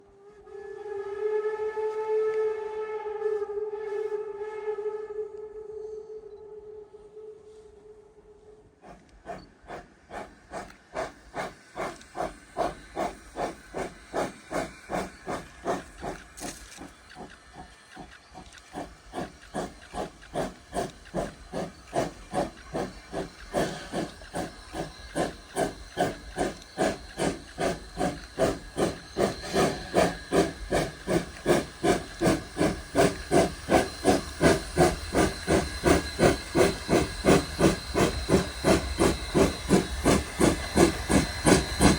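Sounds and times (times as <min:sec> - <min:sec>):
steam locomotive chuffing: 0:08.8 - 0:41.9.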